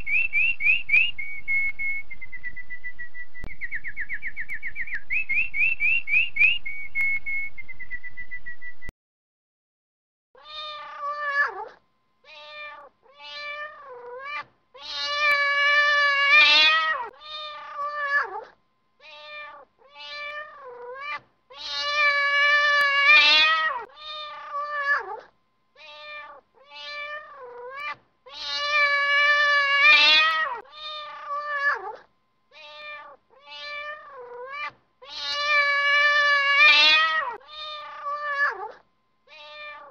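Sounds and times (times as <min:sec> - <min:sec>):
canary singing: 0:00.0 - 0:08.9
cat meowing: 0:10.4 - 0:39.9.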